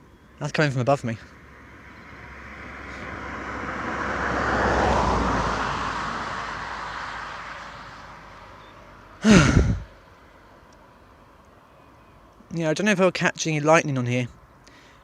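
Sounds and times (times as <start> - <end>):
vehicle passing by: 1.2 - 9.8.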